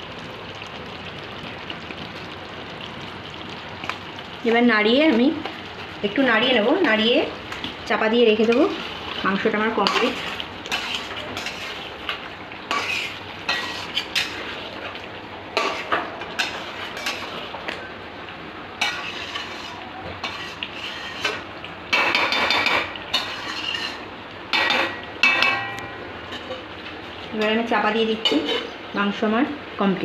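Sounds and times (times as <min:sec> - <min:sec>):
light sizzle: 0:00.0 - 0:30.0
spatula scraping a pan: 0:09.8 - 0:12.0, 0:12.7 - 0:14.6, 0:15.6 - 0:17.4, 0:18.8 - 0:26.7, 0:28.2 - 0:28.8.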